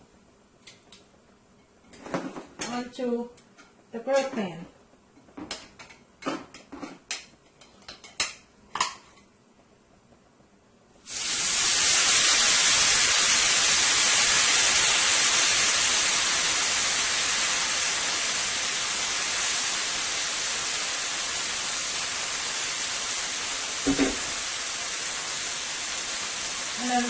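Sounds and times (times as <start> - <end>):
steak sizzling on a grill pan: 11.1 - 27.0.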